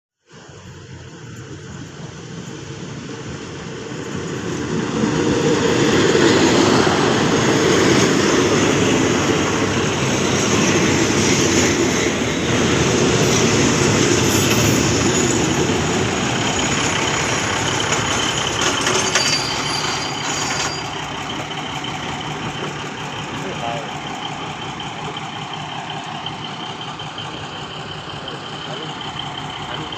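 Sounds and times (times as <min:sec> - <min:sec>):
train wheels rumbling on rails: 0:00.3 - 0:29.9.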